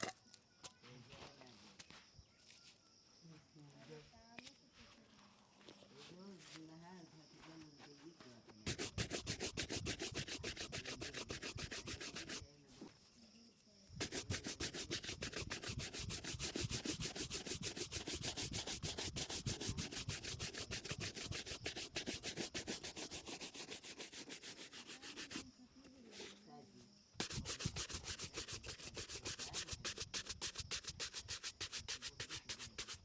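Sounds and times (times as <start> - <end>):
cloth buffing a shoe: 8.6 - 12.5, 14.0 - 25.5, 27.2 - 33.0.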